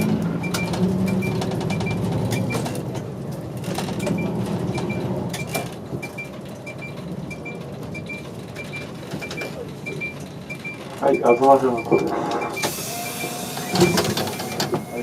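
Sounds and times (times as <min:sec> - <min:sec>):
turn signal ticking: 0:00.0 - 0:02.8
diesel bus engine running: 0:00.0 - 0:15.0.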